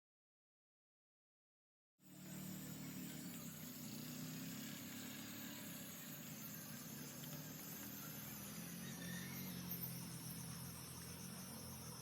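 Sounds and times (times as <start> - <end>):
low engine-like hum: 2.0 - 12.0.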